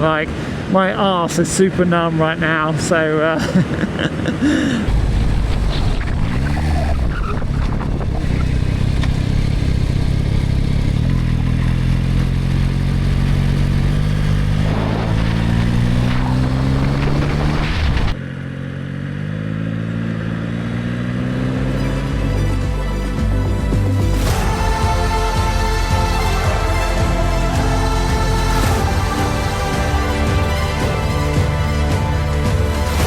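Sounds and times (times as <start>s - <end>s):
rushing wind: 2.7s - 11.7s, 12.5s - 18.2s
motorcycle engine accelerating: 4.9s - 33.0s.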